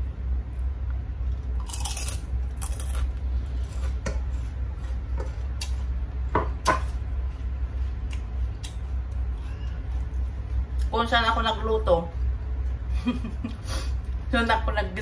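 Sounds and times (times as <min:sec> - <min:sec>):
steady low hum: 0:00.0 - 0:15.0
crunching crispy food: 0:01.3 - 0:04.0.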